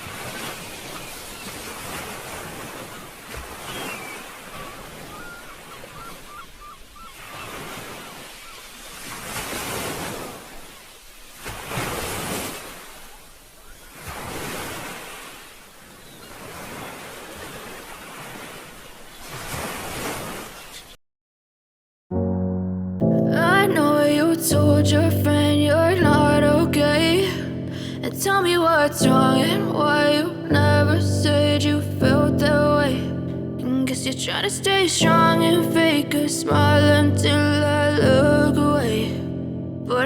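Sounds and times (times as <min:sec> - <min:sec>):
sea waves breaking on beach: 0:00.0 - 0:21.0.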